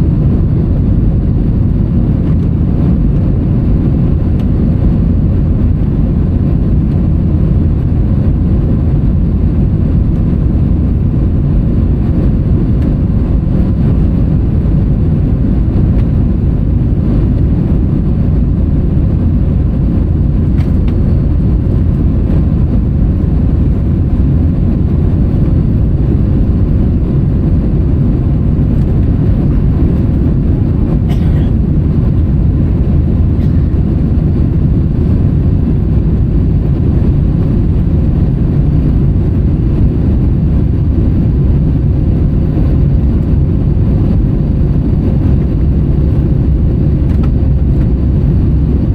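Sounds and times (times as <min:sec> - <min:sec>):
airplane engines rumbling: 0:00.0 - 0:48.9.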